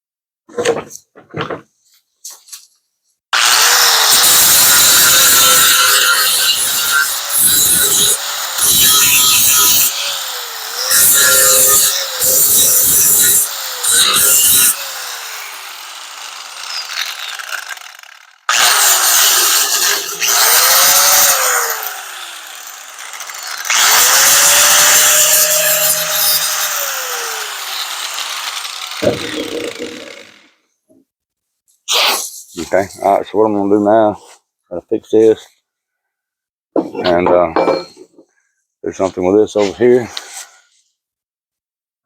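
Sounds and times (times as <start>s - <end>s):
angle grinder grinding sheet metal: 3.4s - 30.5s.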